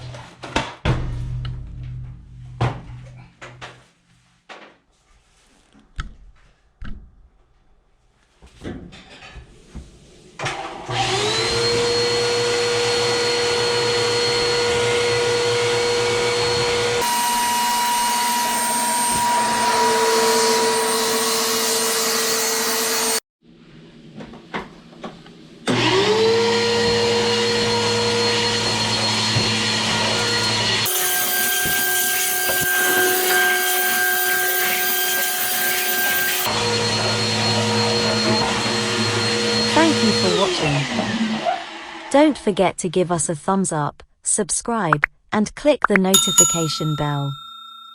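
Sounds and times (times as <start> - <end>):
vacuum cleaner motor whine: 10.4 - 23.2, 25.6 - 42.1.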